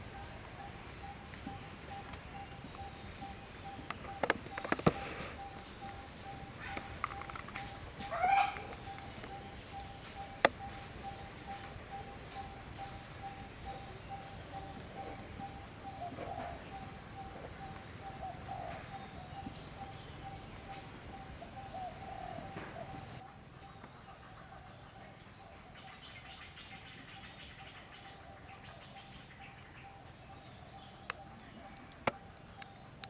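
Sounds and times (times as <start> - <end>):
higher bird chirps: 0.0 - 24.4
birds calling repeated notes: 0.0 - 33.0.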